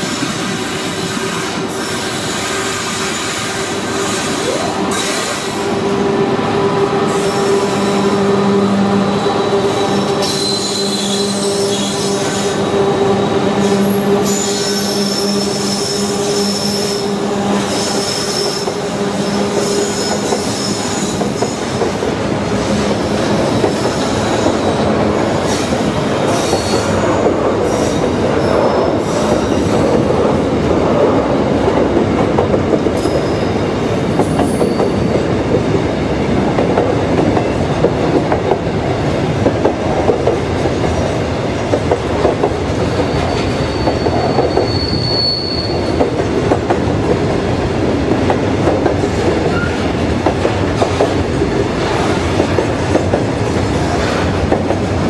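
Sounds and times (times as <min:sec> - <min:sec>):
diesel locomotives droning: 0:00.0 - 0:55.0
high thin wheel squeals: 0:10.2 - 0:12.6, 0:43.1 - 0:46.0.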